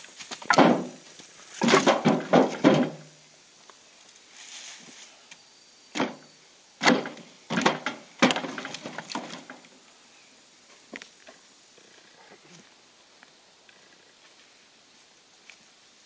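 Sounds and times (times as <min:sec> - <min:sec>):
wood knocking: 0:00.5 - 0:01.0, 0:01.6 - 0:03.1, 0:06.8 - 0:09.6.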